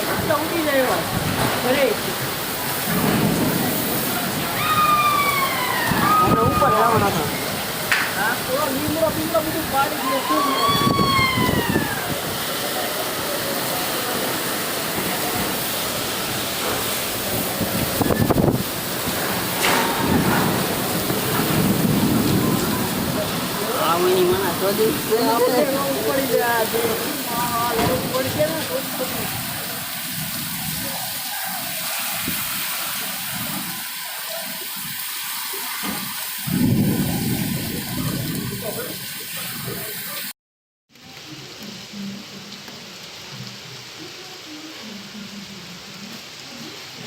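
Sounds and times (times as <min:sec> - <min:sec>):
driving rain: 0:00.0 - 0:47.0
strong wind: 0:02.2 - 0:25.1, 0:35.9 - 0:39.9.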